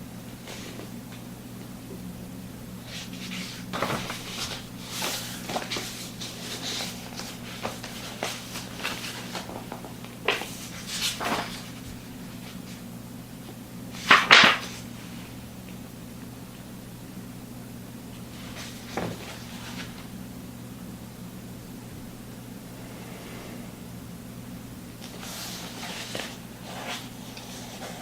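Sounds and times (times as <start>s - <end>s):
steady low hum: 0.0s - 28.0s
rustling and handling noises: 0.2s - 2.1s, 2.7s - 15.8s, 18.0s - 20.2s, 25.0s - 28.0s.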